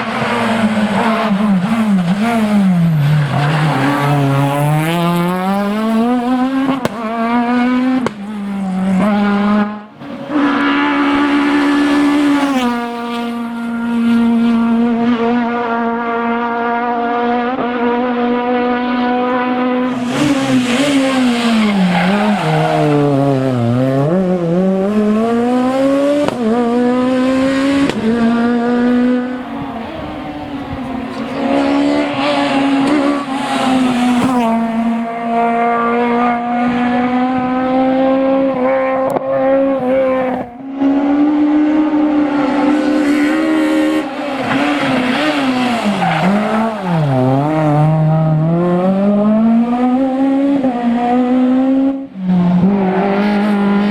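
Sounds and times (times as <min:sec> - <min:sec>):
rally car engine revving: 0:00.0 - 0:53.9.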